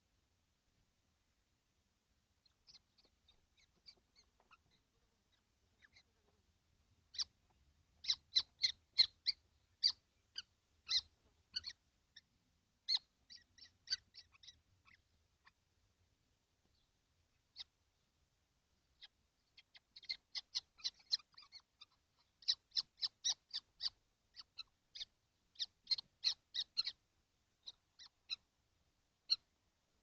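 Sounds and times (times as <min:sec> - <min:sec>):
young kestrels calling: 0:02.4 - 0:06.3, 0:06.9 - 0:15.6, 0:16.7 - 0:18.1, 0:18.8 - 0:28.6, 0:29.2 - 0:29.5.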